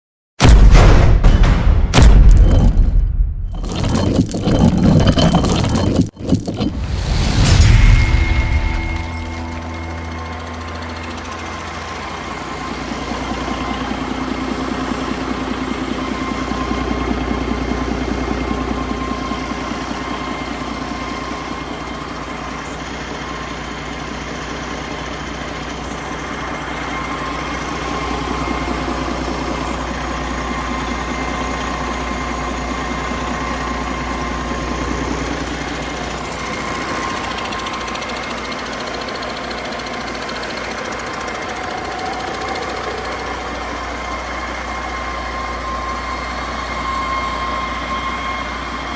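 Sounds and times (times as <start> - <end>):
diesel engine running: 1.4 - 48.9.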